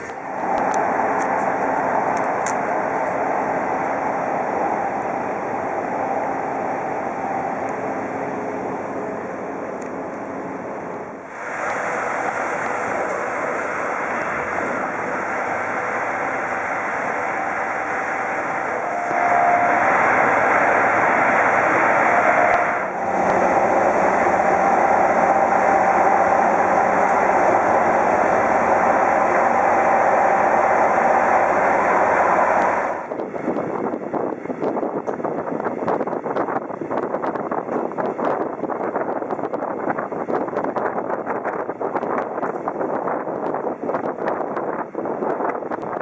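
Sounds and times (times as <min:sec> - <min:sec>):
faint steady whine: 0:00.0 - 0:33.1
train running noise inside carriage: 0:00.0 - 0:46.0.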